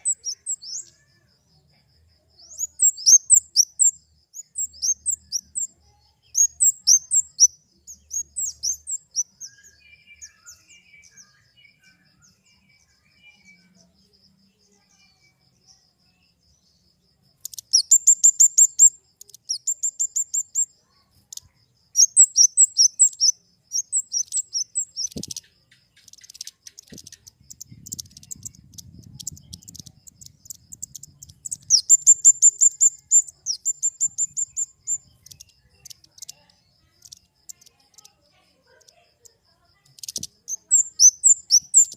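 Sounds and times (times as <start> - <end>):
bird chipping calls: 0.0 - 1.0, 17.4 - 36.3, 39.9 - 41.9
faint low twittering: 26.1 - 36.3.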